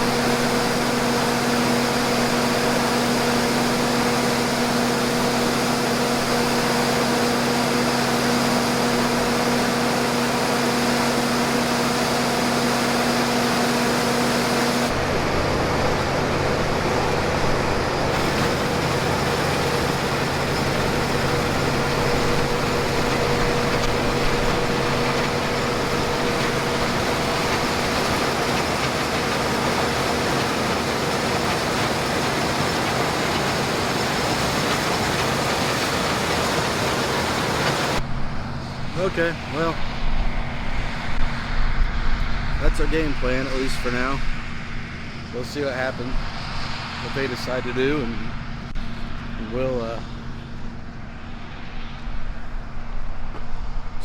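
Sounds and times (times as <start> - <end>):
combine machine hum: 0.0 - 54.0
steady whine: 0.0 - 54.0
deep rumble: 38.0 - 54.0.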